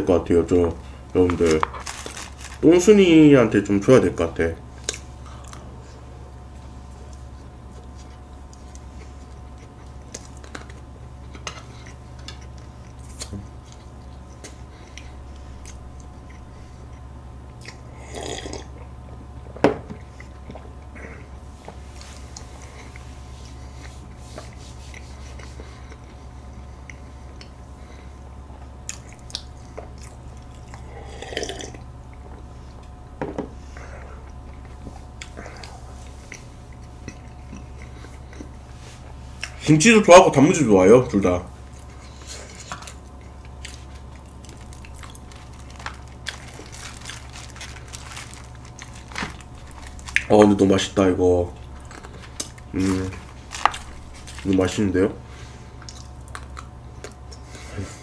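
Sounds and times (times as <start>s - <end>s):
steady low hum: 0.0s - 58.0s
person chewing: 7.0s - 18.9s, 20.0s - 27.6s, 28.6s - 33.0s, 34.0s - 39.6s, 41.7s - 50.4s, 51.5s - 54.6s, 55.3s - 58.0s.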